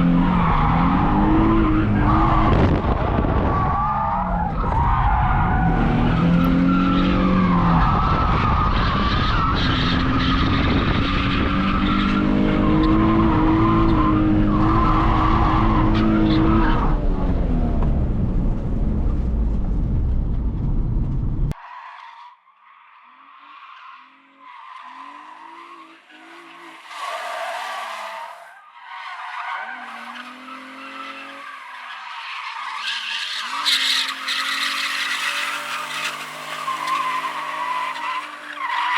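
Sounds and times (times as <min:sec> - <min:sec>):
car engine revving: 0:00.0 - 0:21.6
tyre squeal: 0:24.5 - 0:38.9.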